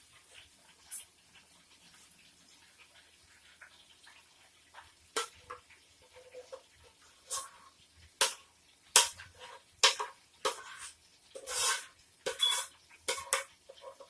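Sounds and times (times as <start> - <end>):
utensil scraping a pot: 6.1 - 8.4, 9.0 - 14.0.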